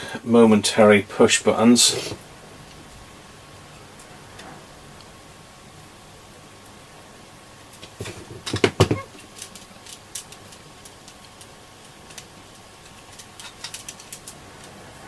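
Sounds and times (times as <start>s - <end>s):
sharp clicks and knocks: 7.7s - 14.8s.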